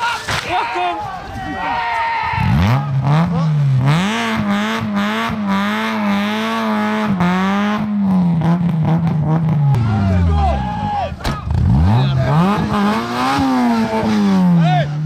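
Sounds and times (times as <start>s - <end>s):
car engine revving hard: 2.4s - 9.8s, 11.4s - 15.0s.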